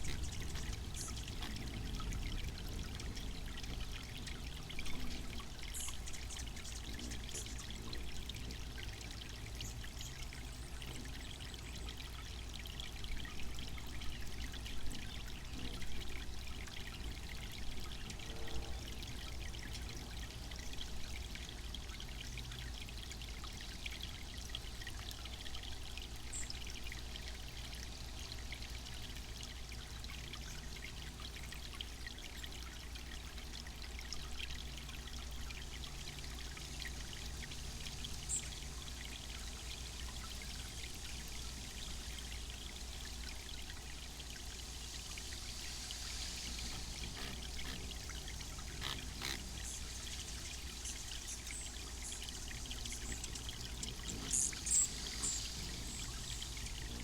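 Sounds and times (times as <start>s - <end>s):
fountain water splashing: 19.1s - 57.0s.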